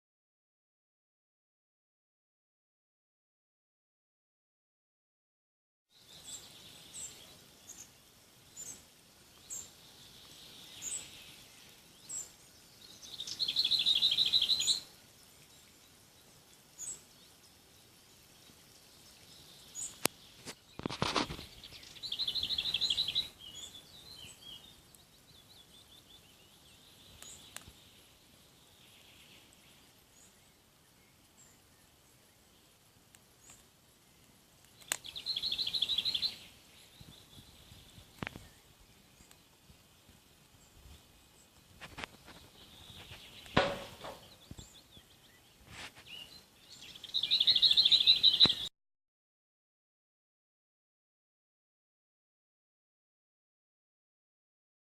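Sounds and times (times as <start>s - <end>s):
birds chirping: 6.0s - 48.7s.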